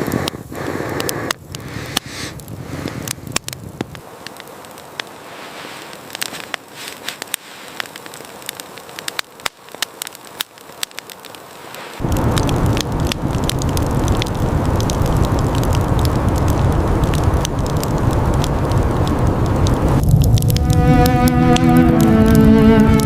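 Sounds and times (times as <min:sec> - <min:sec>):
small fire crackling: 0:00.0 - 0:23.0
low steady rushing noise: 0:11.6 - 0:23.0.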